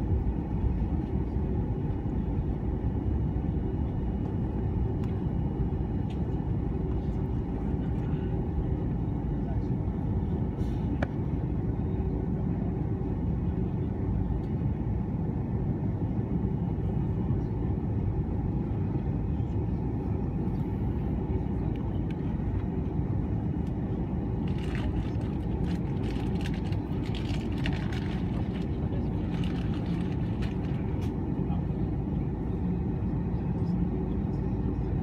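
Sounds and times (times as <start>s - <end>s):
airliner engines and airflow rumble: 0.0s - 35.0s.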